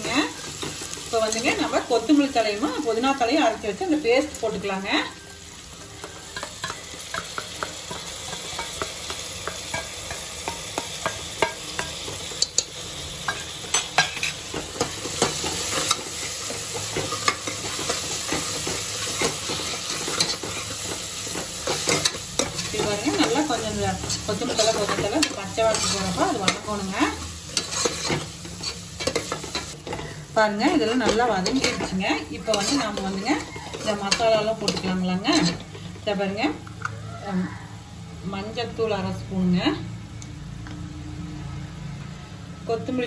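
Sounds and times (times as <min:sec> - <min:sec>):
paste sizzling in oil: 0:00.0 - 0:36.2
steel spoon scraping a pot: 0:13.3 - 0:30.2, 0:30.8 - 0:35.8.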